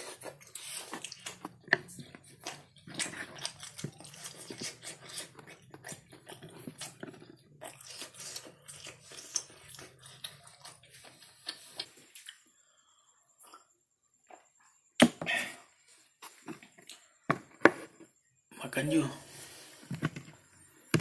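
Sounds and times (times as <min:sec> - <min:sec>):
person chewing with mouth clicks: 0:00.0 - 0:12.4.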